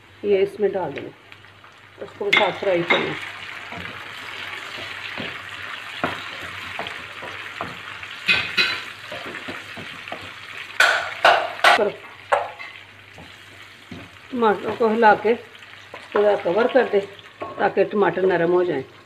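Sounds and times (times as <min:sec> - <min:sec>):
vegetables sizzling in oil: 0:00.1 - 0:19.0
spatula scraping and knocking pan: 0:02.3 - 0:14.9.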